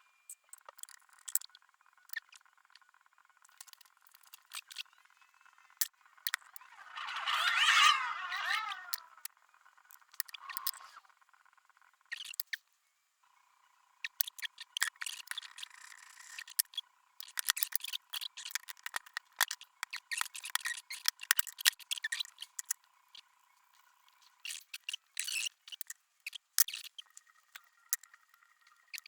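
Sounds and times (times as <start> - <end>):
faint steady tone: 0.0 - 17.3.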